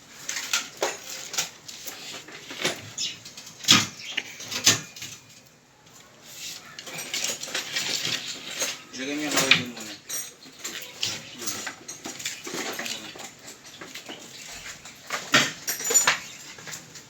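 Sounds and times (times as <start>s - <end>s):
knocks and clatter of objects: 0.1s - 17.0s.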